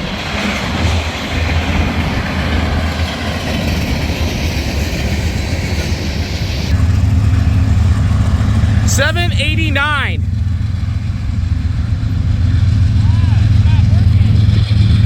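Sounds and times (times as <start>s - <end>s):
train cars rolling over track: 0.0s - 9.2s.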